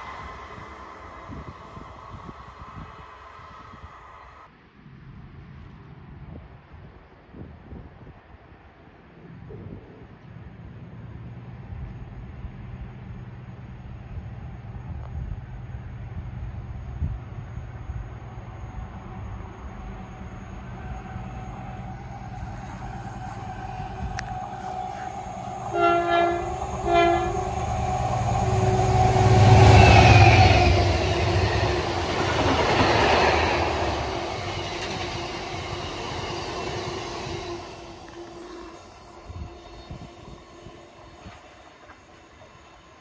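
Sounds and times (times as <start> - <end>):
diesel locomotive engine: 0.0 - 4.6, 9.4 - 43.0
locomotive horn blasts: 21.6 - 31.5, 37.5 - 40.0.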